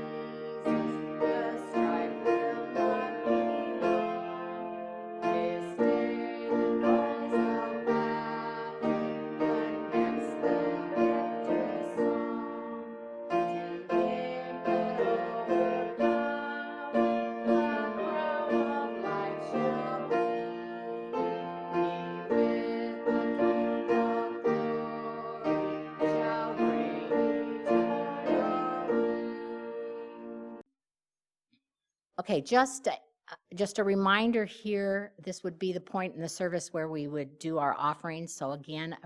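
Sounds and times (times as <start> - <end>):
slow piano chords: 0.0 - 30.6.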